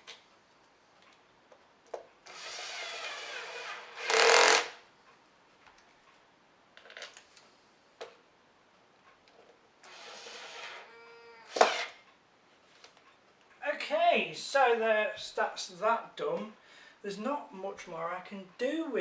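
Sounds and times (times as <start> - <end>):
small power tool running: 2.3 - 4.8
clicks and knocks of parts handled: 6.8 - 8.2.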